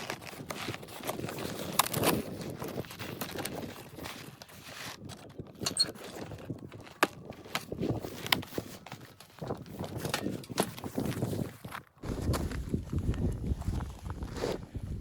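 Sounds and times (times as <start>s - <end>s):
footsteps crunching in snow: 10.9s - 15.0s.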